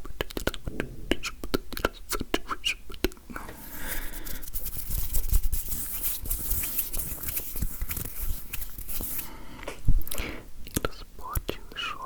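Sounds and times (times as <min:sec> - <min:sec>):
soft low thumps: 0:00.6 - 0:02.1
hands rubbing and tapping microphone: 0:04.0 - 0:09.3.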